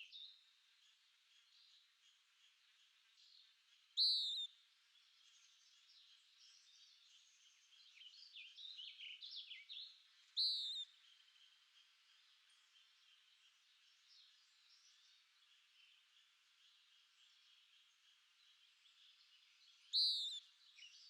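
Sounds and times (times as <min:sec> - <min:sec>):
faint chorus of birds: 0:00.0 - 0:21.0.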